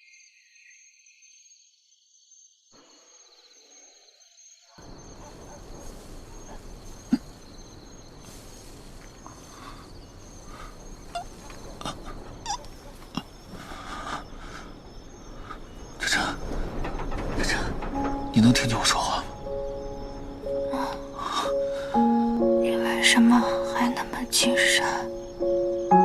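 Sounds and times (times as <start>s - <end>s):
crickets chirping: 0.0s - 26.0s
hiss: 5.6s - 12.1s.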